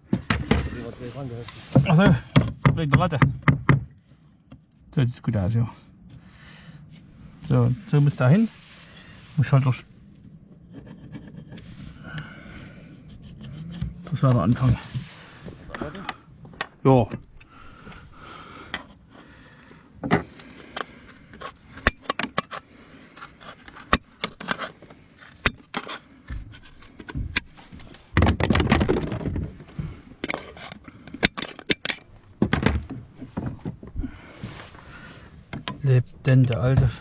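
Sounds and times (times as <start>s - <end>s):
scraping and rustling: 6.9s - 16.7s.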